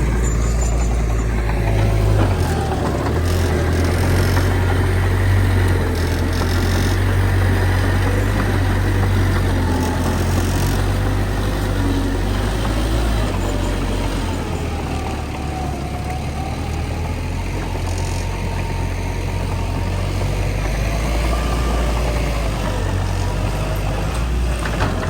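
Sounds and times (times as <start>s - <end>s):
diesel earthmoving machinery running: 0.0s - 25.0s.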